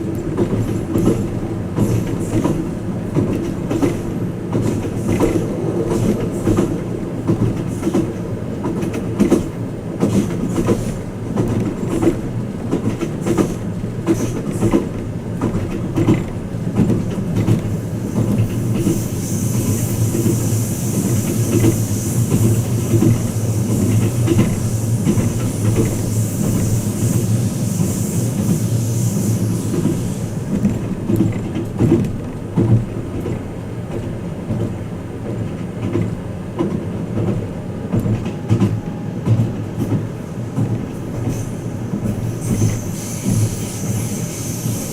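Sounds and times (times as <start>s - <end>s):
wheels clicking over rail joints: 0.0s - 19.0s, 29.7s - 44.0s
train running rumble: 0.0s - 44.9s
high hiss: 17.8s - 30.6s, 40.3s - 44.9s.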